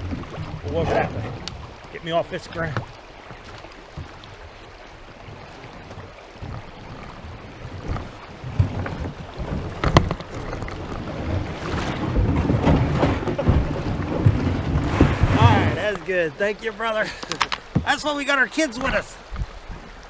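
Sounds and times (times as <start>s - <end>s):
kayak hull scraping creek bed: 0.0s - 20.0s
water sloshing: 0.0s - 20.0s
wind on microphone: 4.0s - 15.9s.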